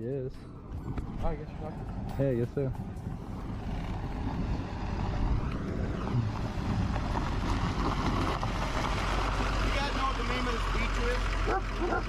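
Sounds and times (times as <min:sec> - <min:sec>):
wind noise on microphone: 0:00.5 - 0:09.7.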